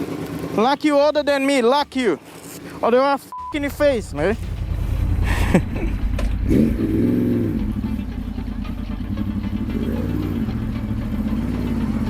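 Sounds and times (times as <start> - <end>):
motorcycle engine revving: 3.4 - 12.0.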